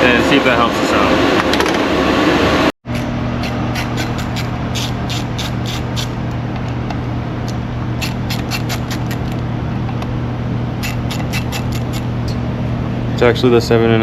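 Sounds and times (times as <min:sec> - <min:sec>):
hand ratchet clicking: 0:02.9 - 0:06.2, 0:07.5 - 0:09.4, 0:10.8 - 0:12.1.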